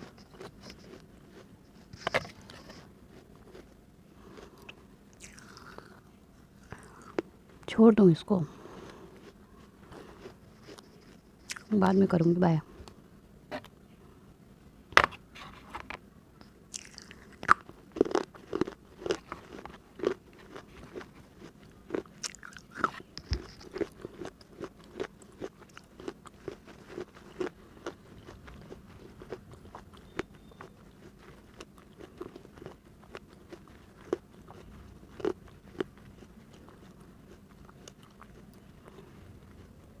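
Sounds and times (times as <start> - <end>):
crunching chews on clay: 0.0 - 7.3, 8.6 - 11.8, 16.4 - 40.0.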